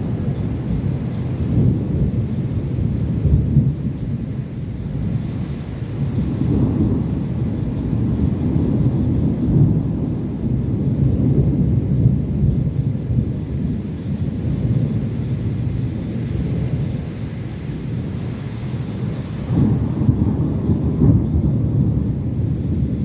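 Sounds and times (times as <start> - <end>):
rolling rumble of thunder: 0.0 - 23.0.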